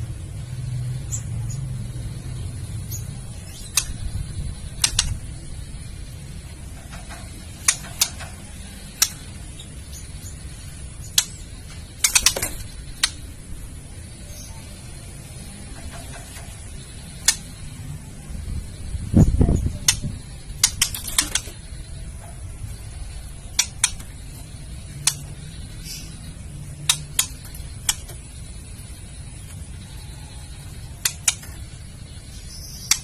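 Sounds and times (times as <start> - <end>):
bird sharp clicking call: 4.8 - 5.2.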